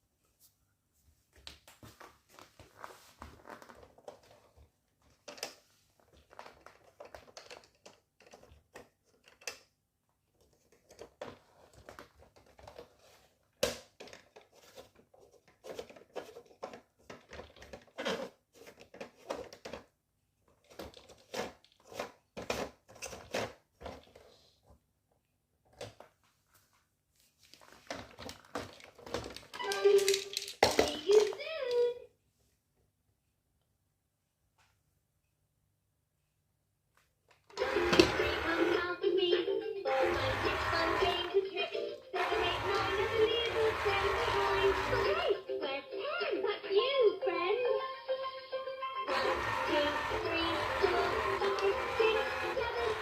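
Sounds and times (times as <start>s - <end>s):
plastic clicking and rustling: 3.8s - 9.8s, 10.4s - 13.0s, 13.6s - 19.9s, 27.5s - 31.9s.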